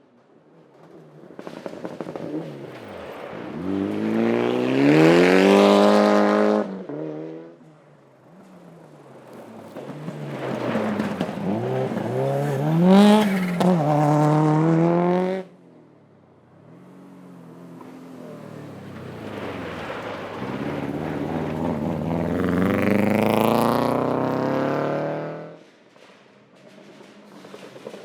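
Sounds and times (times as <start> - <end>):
rally car engine revving: 1.4 - 7.7, 8.3 - 15.5, 16.6 - 25.6.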